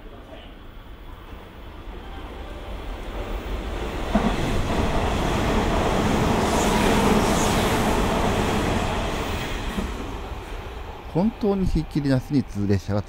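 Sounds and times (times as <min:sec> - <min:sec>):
electric train passing: 0:00.0 - 0:13.0.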